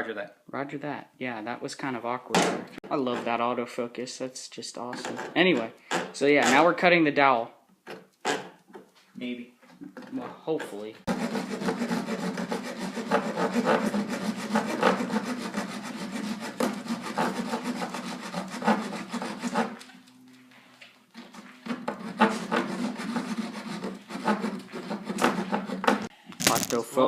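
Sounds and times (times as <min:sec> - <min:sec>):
saw cutting wood: 0:11.1 - 0:19.9, 0:21.2 - 0:26.1.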